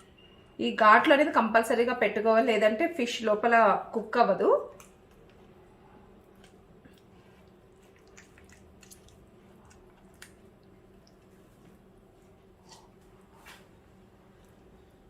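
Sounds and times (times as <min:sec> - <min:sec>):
faint steady hum: 0:00.0 - 0:15.0
hands squelching wet paste: 0:06.2 - 0:11.8.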